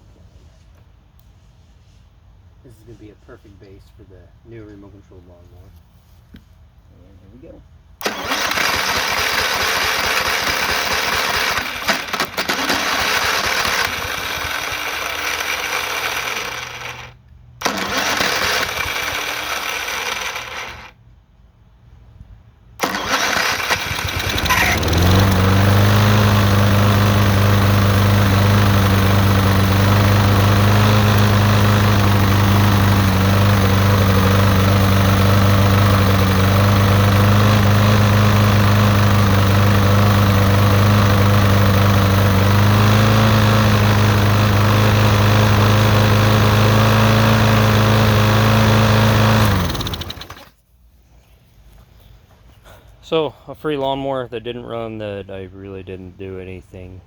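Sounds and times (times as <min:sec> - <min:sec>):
person talking: 0:02.6 - 0:05.8, 0:24.2 - 0:25.6, 0:53.0 - 0:57.0
lawnmower engine running: 0:07.9 - 0:21.0, 0:22.8 - 0:50.6
lawnmower starter motor cranking: 0:08.0 - 0:21.0, 0:22.8 - 0:50.6.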